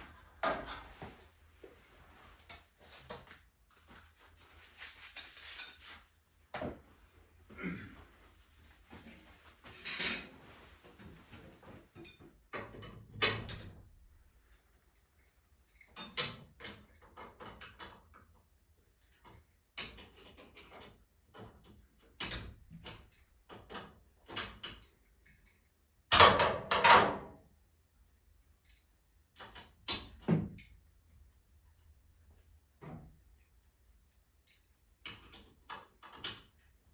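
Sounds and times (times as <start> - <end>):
metallic tool clinks and knocks: 2.2 - 3.4, 34.1 - 35.4.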